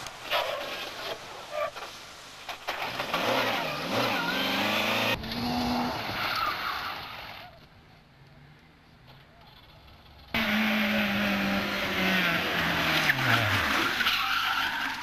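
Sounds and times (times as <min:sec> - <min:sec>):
gravel noise: 0:00.0 - 0:15.0
rally car engine revving: 0:03.0 - 0:07.2, 0:10.4 - 0:14.2.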